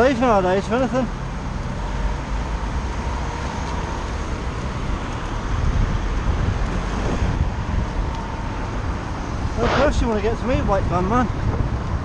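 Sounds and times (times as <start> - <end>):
bicycle road noise: 0.0 - 12.0
motor traffic passing: 0.0 - 12.0
wind on microphone: 5.5 - 8.5, 9.3 - 12.0.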